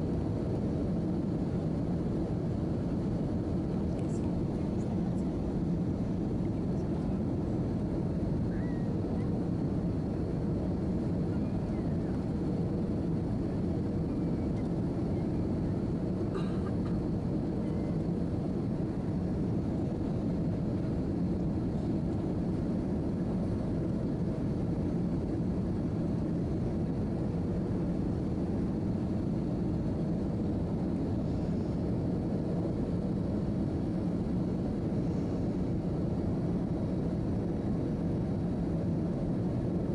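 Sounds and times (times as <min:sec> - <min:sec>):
airliner cabin rumble: 0:00.0 - 0:39.9
faint steady hum: 0:00.0 - 0:39.9.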